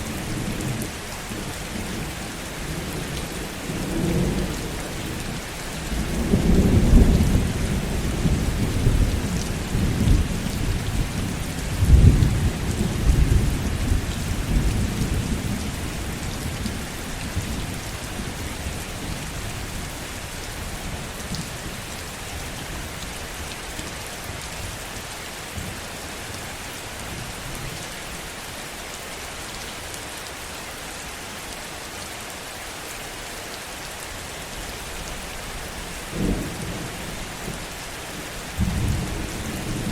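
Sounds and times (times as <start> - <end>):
heavy rain: 0.0 - 39.9
thunder rumbling: 38.6 - 39.9.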